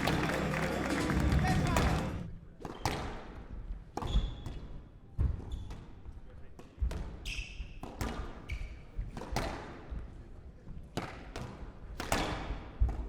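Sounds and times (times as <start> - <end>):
squash ball hitting rackets and walls: 6.6 - 9.9, 11.0 - 13.0.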